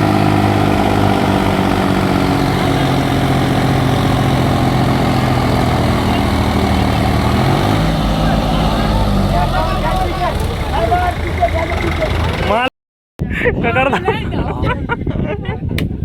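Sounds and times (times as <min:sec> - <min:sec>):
tractor diesel engines droning: 0:00.0 - 0:12.7.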